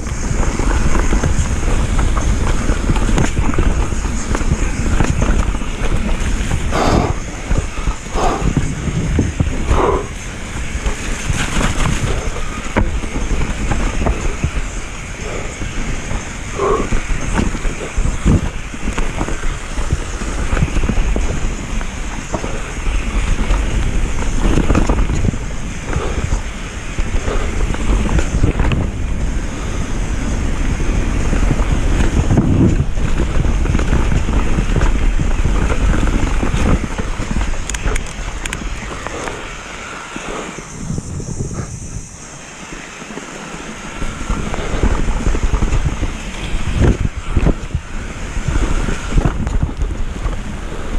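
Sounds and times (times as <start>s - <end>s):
mountain bike rattling over trail: 0.0s - 50.9s
wind buffeting microphone: 0.0s - 50.9s.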